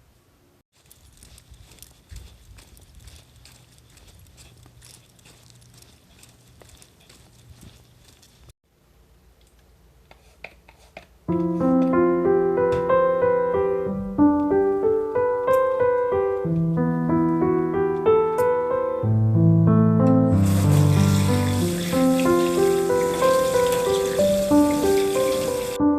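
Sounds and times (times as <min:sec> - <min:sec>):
gentle piano music: 0:11.3 - 0:25.9.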